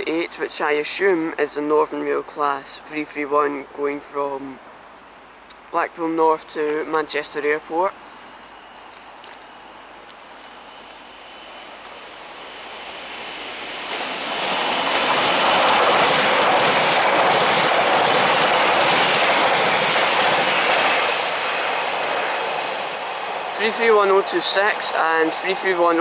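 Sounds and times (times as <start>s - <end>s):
train wheels on rails: 8.3s - 26.0s.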